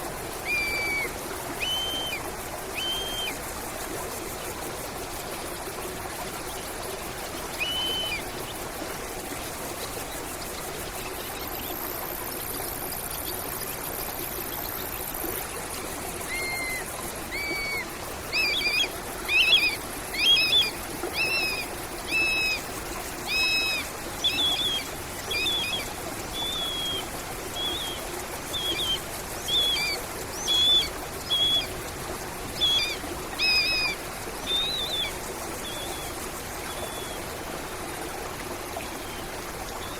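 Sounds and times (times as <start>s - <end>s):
stream water running: 0.0s - 39.9s
songbird calling: 0.4s - 3.4s, 7.5s - 8.4s, 16.3s - 31.9s, 32.5s - 37.2s.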